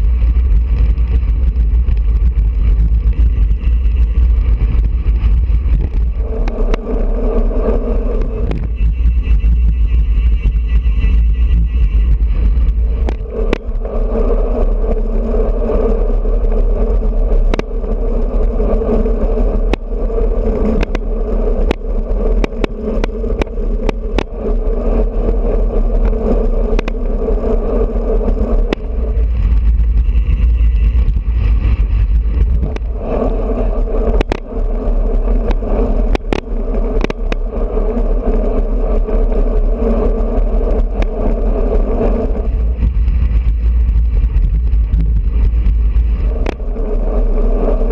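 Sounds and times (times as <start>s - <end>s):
steady hum: 0.0s - 47.9s
wind buffeting microphone: 0.0s - 47.9s
sharp clicks and knocks: 3.1s - 7.0s, 7.7s - 8.9s, 12.6s - 14.0s, 17.4s - 18.0s, 19.6s - 19.9s, 20.6s - 24.6s, 26.0s - 27.1s, 28.6s - 29.7s, 32.3s - 33.3s, 34.0s - 34.6s, 35.3s - 37.5s, 44.4s - 46.8s.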